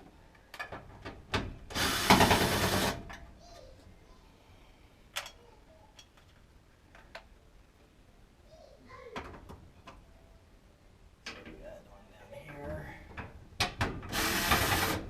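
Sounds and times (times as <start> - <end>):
power drill running: 1.7 - 3.0, 14.1 - 15.0.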